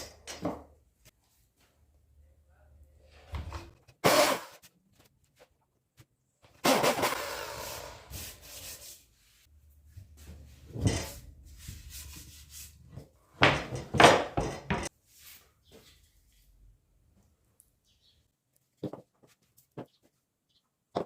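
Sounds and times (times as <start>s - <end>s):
wooden knocks and clatter: 13.4s - 14.9s, 18.8s - 20.1s.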